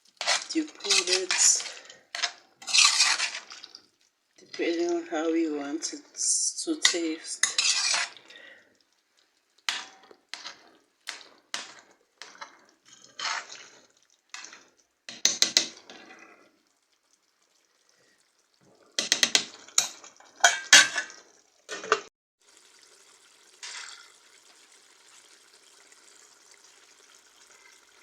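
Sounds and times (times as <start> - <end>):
utensil scraping a pot: 0.1 - 3.8, 5.8 - 8.5, 9.7 - 16.5.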